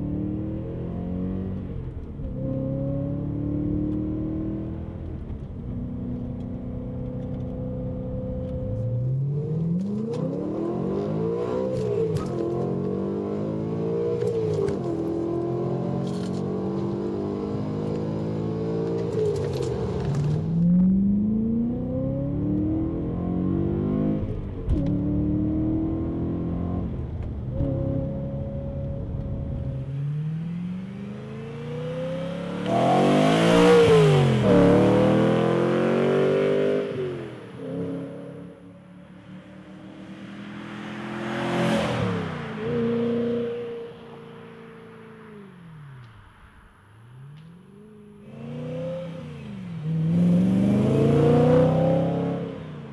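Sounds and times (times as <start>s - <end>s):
car engine accelerating hard: 0.0s - 43.9s, 47.3s - 52.9s
car passing by loudly: 39.0s - 47.0s.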